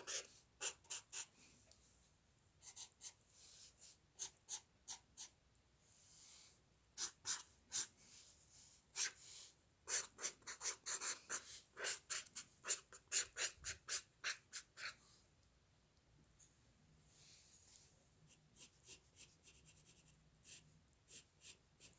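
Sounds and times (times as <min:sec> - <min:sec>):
drawing tool scratching paper: 0:00.0 - 0:01.3.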